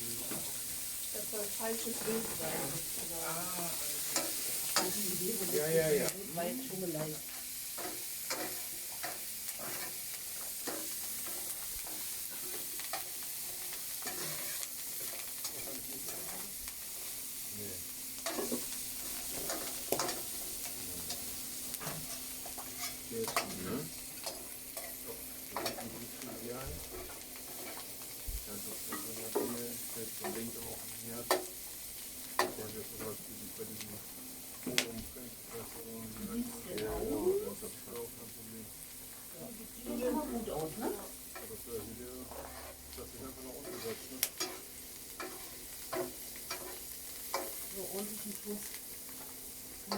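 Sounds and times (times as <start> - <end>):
food sizzling in a pan: 0.0 - 49.9
spoon scraping and knocking pan: 7.4 - 16.5, 18.2 - 21.2, 21.8 - 23.6, 42.3 - 47.6.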